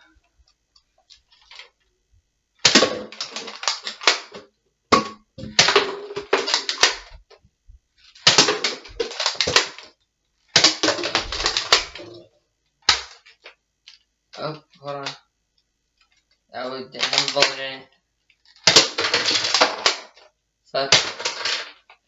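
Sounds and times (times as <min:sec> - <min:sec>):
dart blaster plastic clicks: 0:02.6 - 0:04.4, 0:05.4 - 0:07.2, 0:08.2 - 0:09.9, 0:10.5 - 0:12.2, 0:12.8 - 0:14.0, 0:17.0 - 0:17.8, 0:18.4 - 0:20.3.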